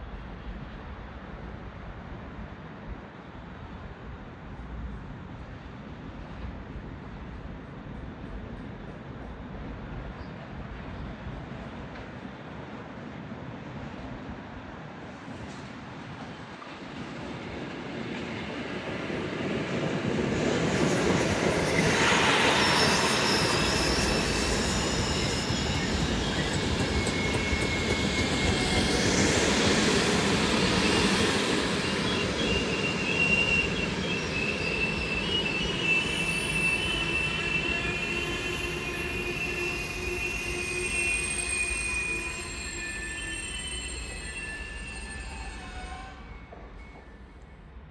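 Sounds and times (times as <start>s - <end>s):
train running on tracks: 0.0s - 47.9s
wheel squeal on rails: 20.2s - 47.5s.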